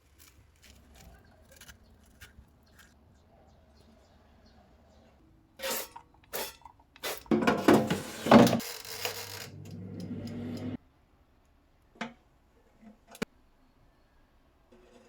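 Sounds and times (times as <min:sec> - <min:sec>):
scraping and handling noise: 0:07.3 - 0:10.8
steady low hum: 0:09.4 - 0:10.8.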